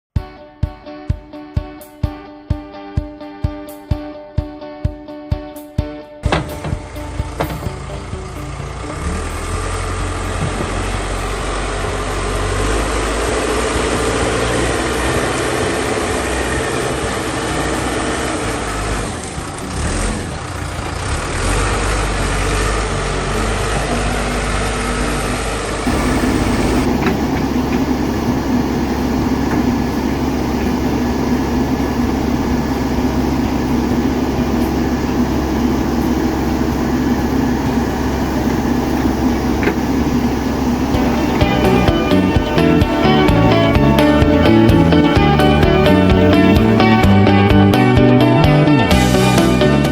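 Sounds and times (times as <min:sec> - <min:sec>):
backhoe diesel engine working: 0:06.8 - 0:15.6, 0:17.4 - 0:48.2.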